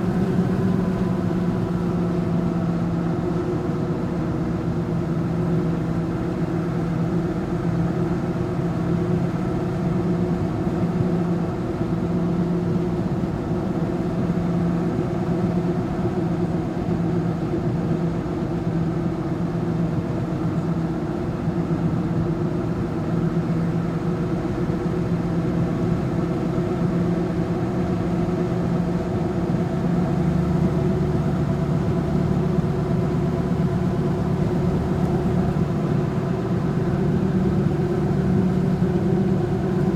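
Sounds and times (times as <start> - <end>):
vehicle engine droning: 0.0 - 4.3, 29.0 - 39.9.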